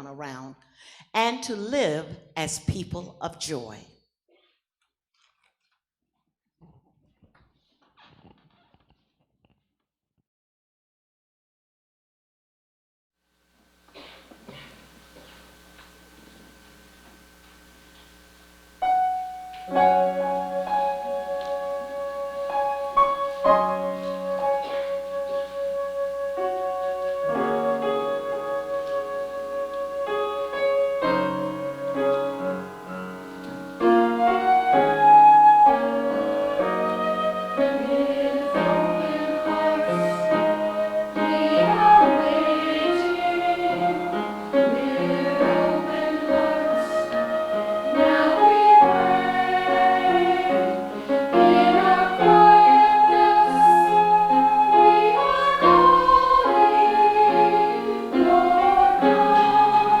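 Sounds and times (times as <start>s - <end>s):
piano music: 18.6s - 60.0s
person singing: 33.8s - 60.0s.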